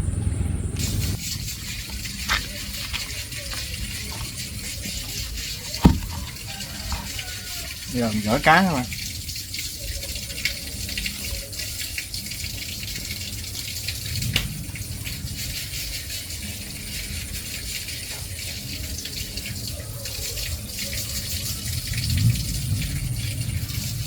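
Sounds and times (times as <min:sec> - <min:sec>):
water splashing: 0:00.8 - 0:24.0
rustling and rattling of wet net: 0:01.1 - 0:09.9
low thump: 0:05.8 - 0:06.3.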